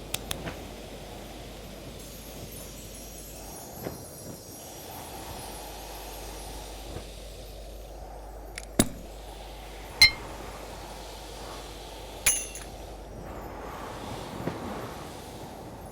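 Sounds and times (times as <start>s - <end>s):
sharp ringing clinks: 10.0s - 10.4s, 12.3s - 12.8s.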